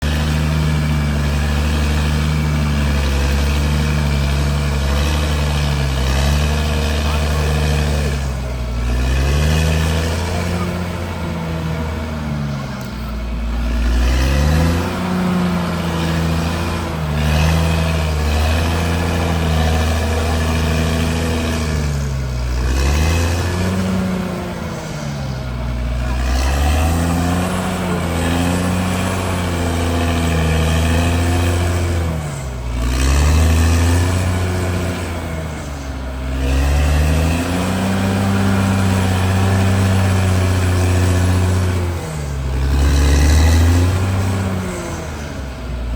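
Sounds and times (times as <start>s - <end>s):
bulldozer diesel engine under load: 0.0s - 45.9s.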